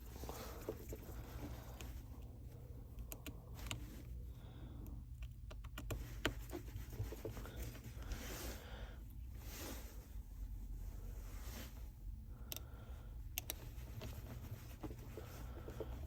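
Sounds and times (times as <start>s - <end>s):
soft rustle: 0.0s - 2.6s, 6.0s - 12.2s, 13.5s - 16.0s
steady low hum: 0.0s - 16.0s.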